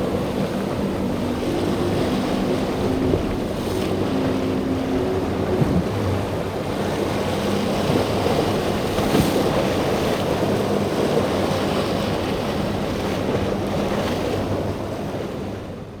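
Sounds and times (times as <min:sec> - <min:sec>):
waves breaking: 0:00.0 - 0:15.7
motorboat engine running: 0:00.0 - 0:16.0.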